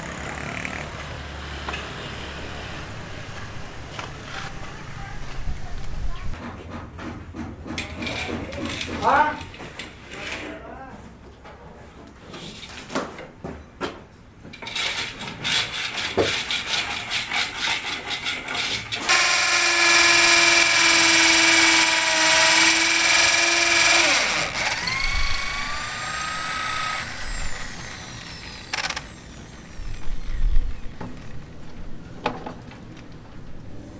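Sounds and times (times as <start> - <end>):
power tool motor whine: 19.0 - 31.8
power tool rattling: 19.0 - 33.2.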